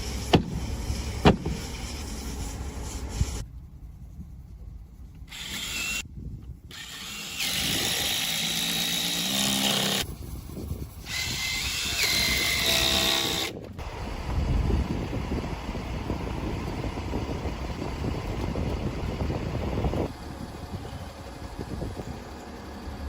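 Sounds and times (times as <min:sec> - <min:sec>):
construction site background noise: 0:00.0 - 0:10.1, 0:11.0 - 0:23.0
power tool whining: 0:05.3 - 0:06.0, 0:06.7 - 0:10.0, 0:11.0 - 0:23.0.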